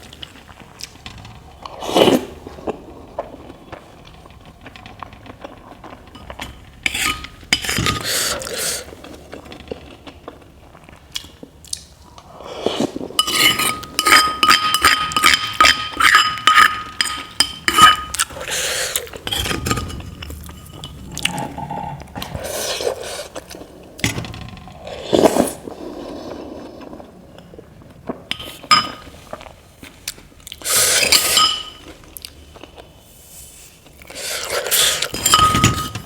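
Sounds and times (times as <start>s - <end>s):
cutlery clinking on bowl: 13.2s - 18.5s, 31.0s - 31.9s, 34.8s - 36.0s.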